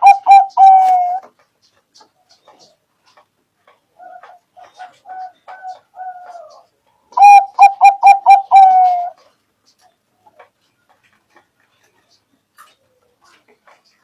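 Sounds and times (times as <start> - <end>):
dove cooing: 0.0 - 1.4, 3.9 - 9.3.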